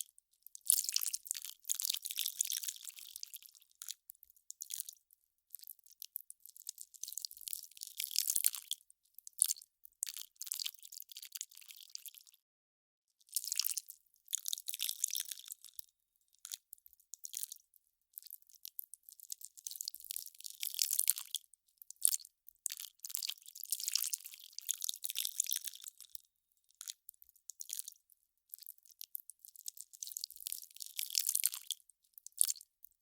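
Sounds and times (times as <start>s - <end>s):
melting ice crackling and fizzing: 13.1s - 32.6s.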